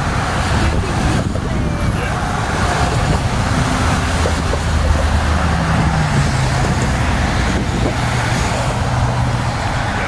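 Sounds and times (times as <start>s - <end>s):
vehicle engine hum: 0.0s - 10.0s.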